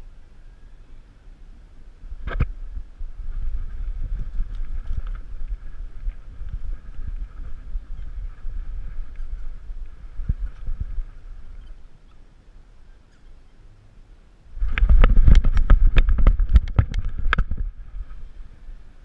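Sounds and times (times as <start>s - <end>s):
low rumbling handling noise: 1.8s - 13.5s, 14.5s - 18.8s
camera knocking and rattling: 2.2s - 2.6s, 14.6s - 17.8s.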